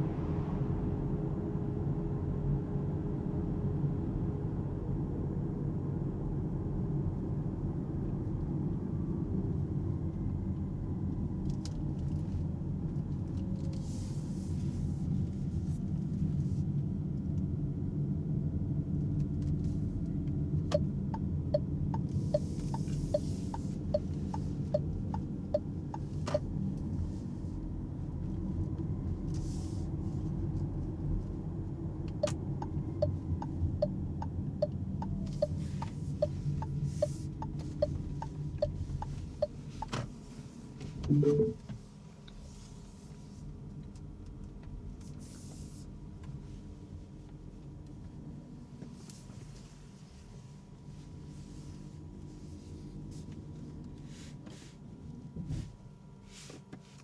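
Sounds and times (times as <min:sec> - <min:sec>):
road and tyre rumble in car cabin: 0:00.0 - 0:57.0
turn indicator ticking: 0:20.7 - 0:26.5, 0:32.1 - 0:40.0.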